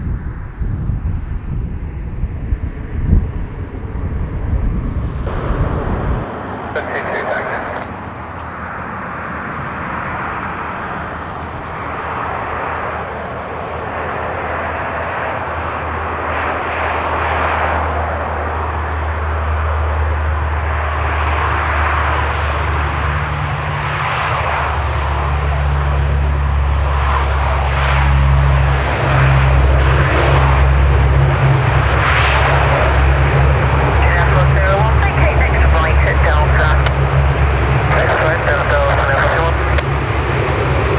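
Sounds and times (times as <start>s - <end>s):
aircraft engines running: 0.0s - 40.9s
low steady drone: 5.0s - 9.4s, 14.4s - 40.9s.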